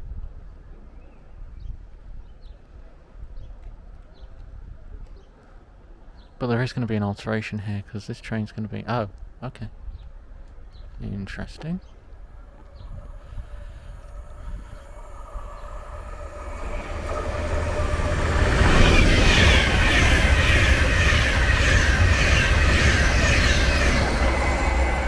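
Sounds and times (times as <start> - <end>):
train passing with clatter: 10.2 - 25.0.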